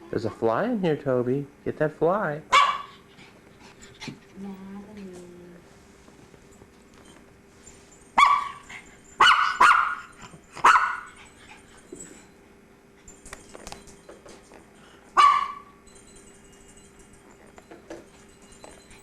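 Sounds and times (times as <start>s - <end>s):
dog barking: 2.5s - 3.0s, 8.2s - 8.6s, 9.2s - 11.1s, 15.2s - 15.7s.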